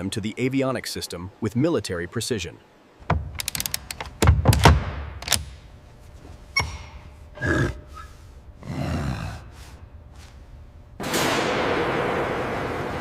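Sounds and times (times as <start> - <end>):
sharp clicks: 3.1 - 5.6.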